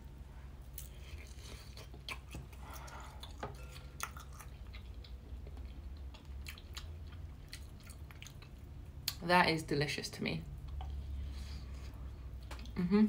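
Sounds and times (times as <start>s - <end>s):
chewing food: 0.8s - 9.2s.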